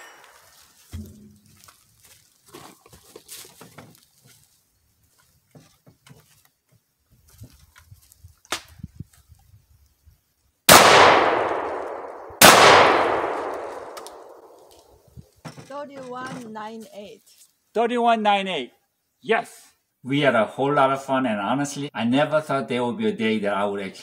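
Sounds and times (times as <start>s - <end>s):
echoing gunshots: 10.7s - 14.7s.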